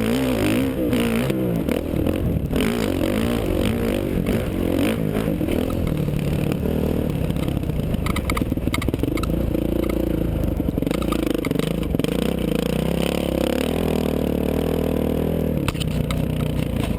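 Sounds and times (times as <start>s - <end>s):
dirt bike engine revving: 0.0s - 16.9s
sharp knocks and rattles: 5.4s - 12.4s.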